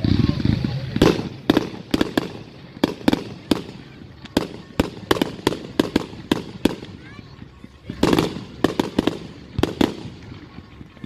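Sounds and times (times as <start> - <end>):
fireworks sharp bangs: 0.0 - 11.0.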